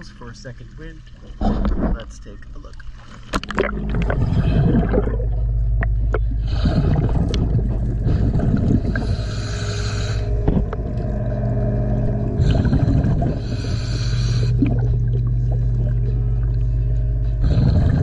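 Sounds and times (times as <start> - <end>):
steady low hum: 0.0 - 18.0
diver's regulator breathing hiss: 8.2 - 10.4, 12.4 - 14.6.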